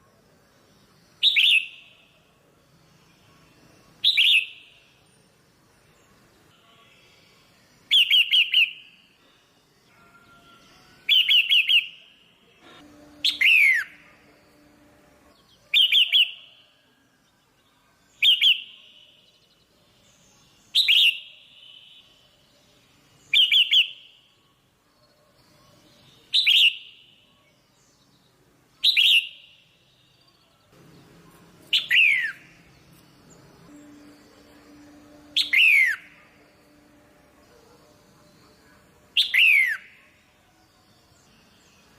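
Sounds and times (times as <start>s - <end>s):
bird chirping calls: 1.2s - 2.2s, 4.0s - 4.9s, 9.9s - 16.8s, 18.1s - 24.2s, 25.0s - 41.9s.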